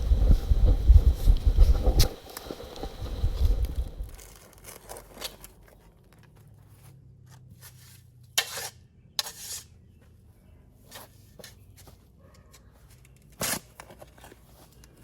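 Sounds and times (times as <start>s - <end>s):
shovel digging into stony soil: 8.4s - 9.7s, 13.3s - 13.9s.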